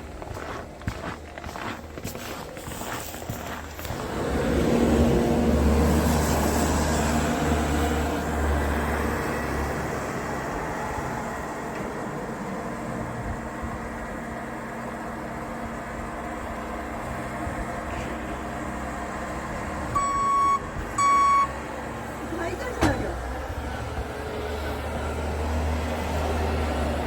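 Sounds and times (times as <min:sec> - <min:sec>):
vehicle engine driving past: 0:00.8 - 0:14.8.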